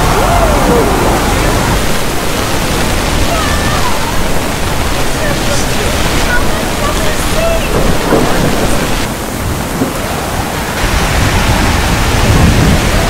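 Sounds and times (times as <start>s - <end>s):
deep low rumble: 0.0s - 9.1s
heavy rain on umbrella: 0.0s - 13.0s.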